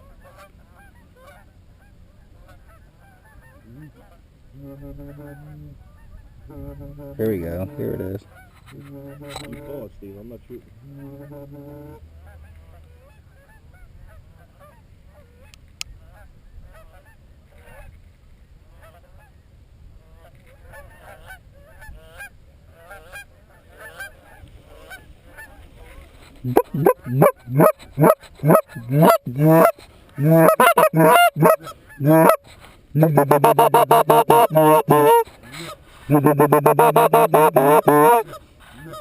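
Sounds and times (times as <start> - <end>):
geese honking: 2.4 - 9.8, 10.9 - 12.0, 26.4 - 39.0.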